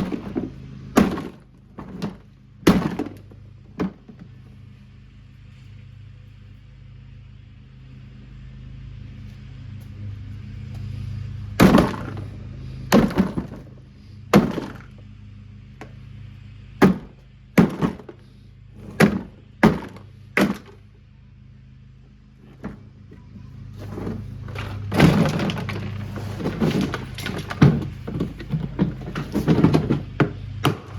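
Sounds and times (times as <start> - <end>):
heavy blows smashing washing machine: 0.0 - 4.2, 11.6 - 14.9, 16.8 - 18.2, 18.8 - 20.8, 23.8 - 30.9
steady low hum: 0.0 - 30.9.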